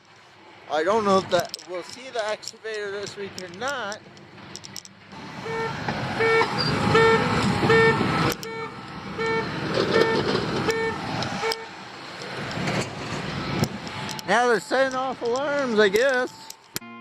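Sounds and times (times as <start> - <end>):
machine engine running: 5.2 - 14.7
reversing alarm beeping: 5.4 - 11.9.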